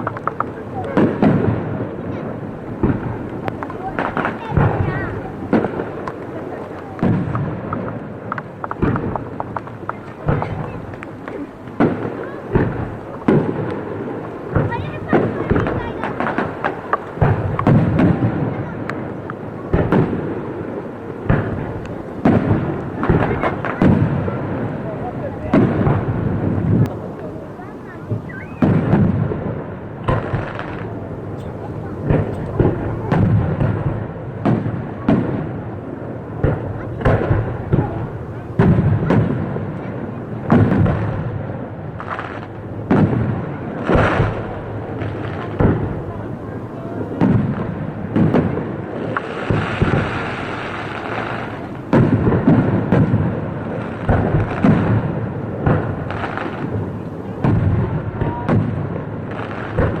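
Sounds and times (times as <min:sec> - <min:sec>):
faint cracks: 0:00.0 - 0:01.3, 0:02.1 - 0:29.0
rain: 0:00.0 - 0:29.2
fireworks booming: 0:00.0 - 1:00.0
strong wind: 0:00.0 - 1:00.0.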